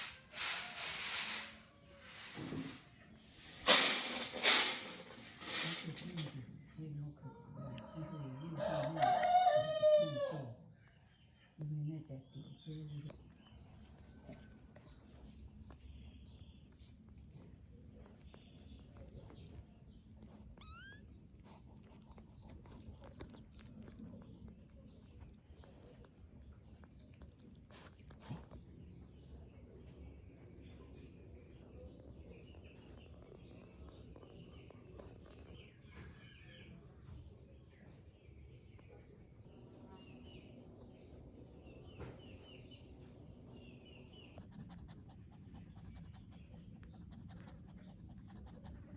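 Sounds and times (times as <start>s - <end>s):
animal squeaks and chirps: 20.6s - 21.1s.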